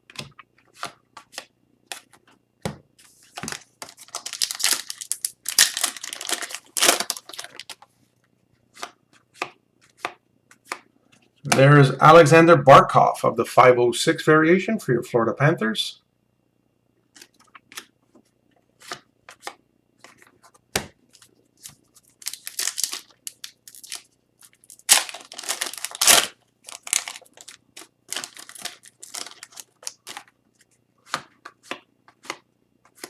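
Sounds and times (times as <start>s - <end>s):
cards and wrappers rustling: 3.2s - 7.9s, 21.1s - 33.0s.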